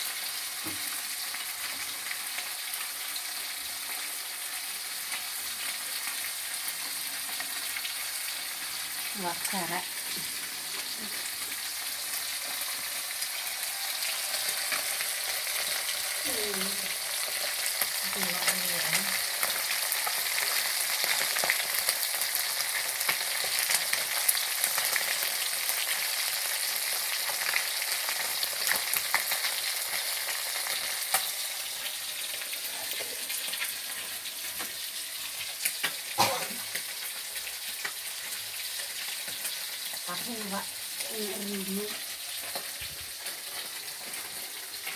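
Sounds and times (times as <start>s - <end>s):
fish sizzling in hot oil: 0.0s - 44.9s
oil crackling and popping: 0.0s - 44.9s.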